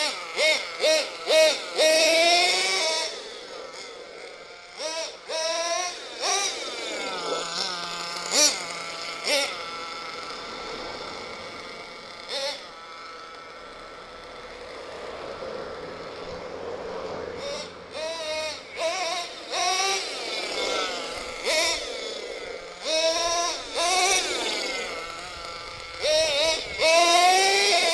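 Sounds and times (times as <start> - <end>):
small nitro engine revving: 0.0 - 27.9.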